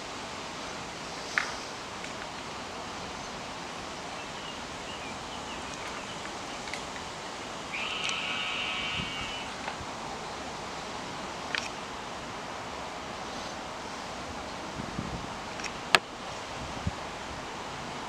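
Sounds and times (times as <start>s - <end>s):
outdoor background noise: 0.0s - 18.0s
buzzy raspy call: 7.7s - 9.7s.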